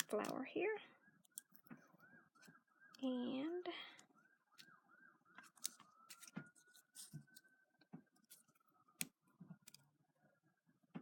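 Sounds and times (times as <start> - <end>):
paper rustling and clicking: 0.0 - 0.4, 4.5 - 9.9
faint steady high tone: 0.0 - 11.0.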